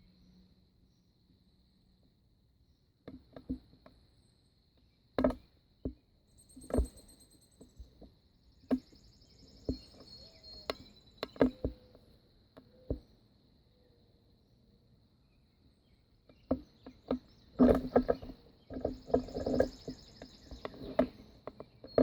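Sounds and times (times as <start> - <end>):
sharp knocks and clicks: 3.0 - 4.0, 5.2 - 6.0, 6.6 - 9.0, 9.6 - 12.0, 16.3 - 22.0
crickets trilling: 3.2 - 22.0.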